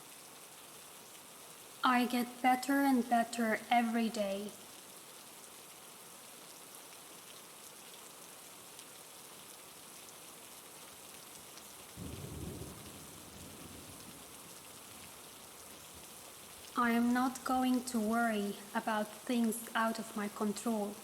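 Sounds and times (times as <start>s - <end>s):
steady rainfall: 0.0s - 21.0s
low rumble of thunder: 12.0s - 15.2s.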